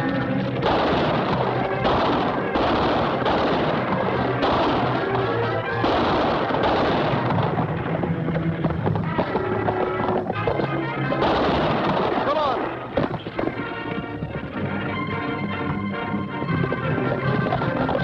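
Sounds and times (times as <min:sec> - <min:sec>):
echoing gunshots: 0:00.0 - 0:14.0
dramatic orchestral music: 0:00.0 - 0:18.0.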